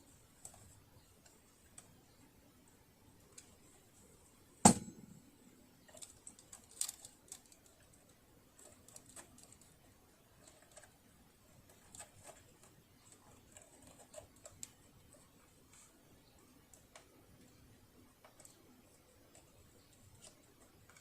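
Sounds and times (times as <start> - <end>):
sharp knock: 4.6 - 5.2.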